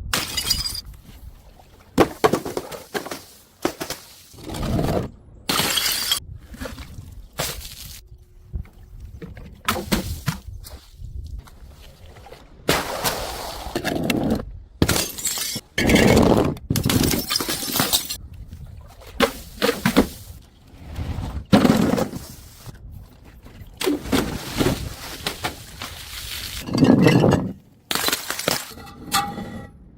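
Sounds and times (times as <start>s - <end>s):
glass bottles smashing: 0.2s - 0.9s, 5.5s - 6.2s, 14.8s - 15.6s, 16.8s - 18.2s
glass shards rattling: 16.9s - 18.2s.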